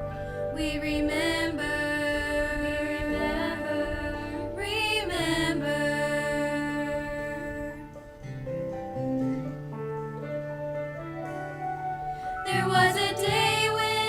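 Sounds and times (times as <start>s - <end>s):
instrumental accompaniment: 0.0s - 14.0s
vocal group singing a ballad: 0.2s - 8.0s, 12.3s - 14.0s.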